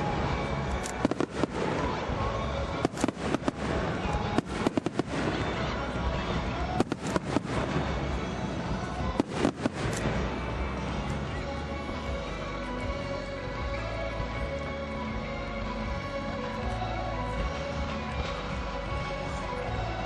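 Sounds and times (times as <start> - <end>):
fireworks bangs and crackles: 0.0 - 12.2.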